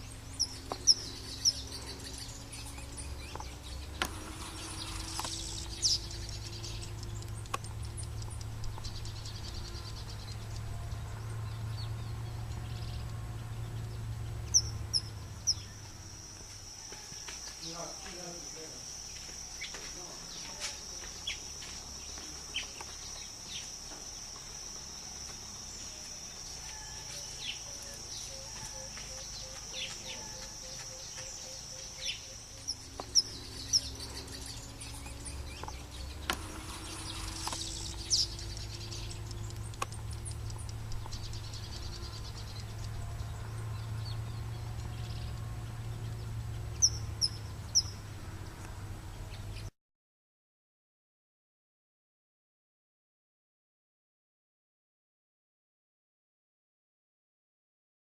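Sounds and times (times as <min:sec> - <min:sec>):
low hum: 0:00.0 - 0:16.8, 0:20.8 - 0:49.6
birds chirping: 0:00.0 - 0:49.7
insect drone: 0:00.0 - 0:49.7.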